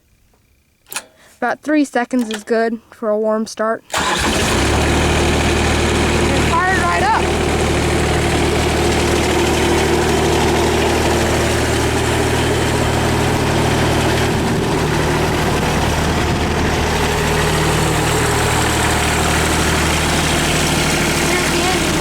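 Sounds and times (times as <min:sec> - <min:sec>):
diesel mower engine idling: 0:03.9 - 0:22.0.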